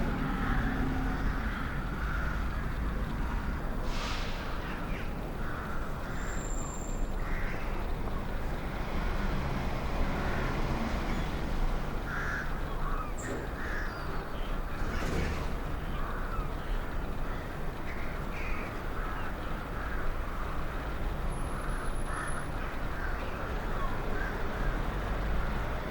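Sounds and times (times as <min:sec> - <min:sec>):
distant city traffic rumble: 0:00.0 - 0:25.9
crows cawing: 0:00.1 - 0:03.6, 0:05.0 - 0:06.4, 0:07.2 - 0:07.8, 0:12.0 - 0:14.1, 0:17.2 - 0:20.6, 0:21.6 - 0:24.8.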